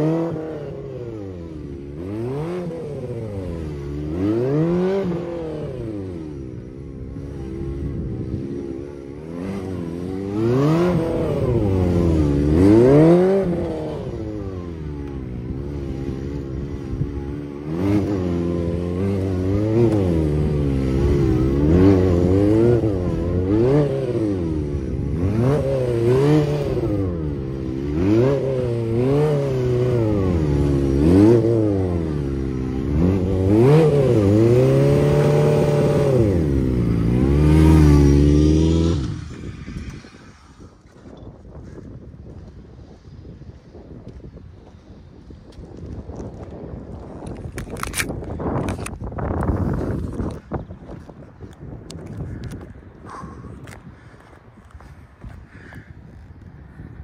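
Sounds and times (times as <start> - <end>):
motorcycle engine revving: 0.0 - 41.2.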